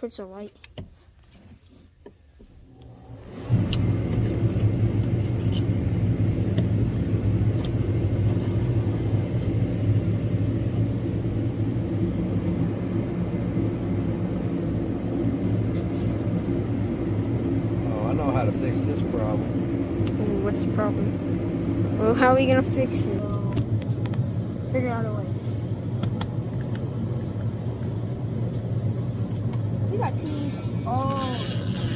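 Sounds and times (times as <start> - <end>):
machine motor humming: 2.7 - 23.8.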